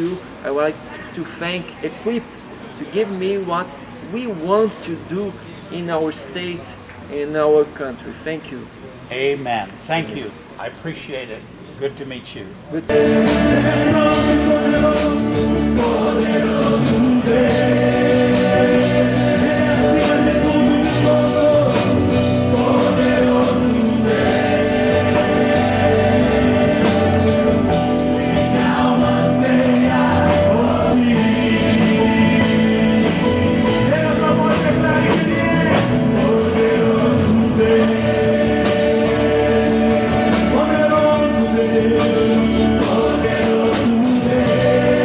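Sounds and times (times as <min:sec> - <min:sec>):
choir singing gospel song: 0:12.9 - 0:45.0
instrumental accompaniment with beat: 0:12.9 - 0:45.0.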